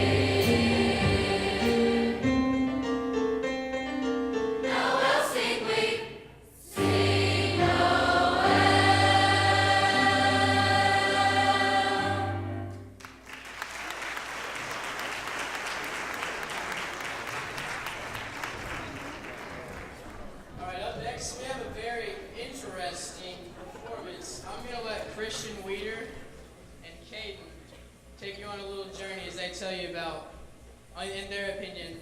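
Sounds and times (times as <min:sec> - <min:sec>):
choir singing: 0:00.0 - 0:02.7, 0:04.5 - 0:12.9
audience applause: 0:13.0 - 0:20.5.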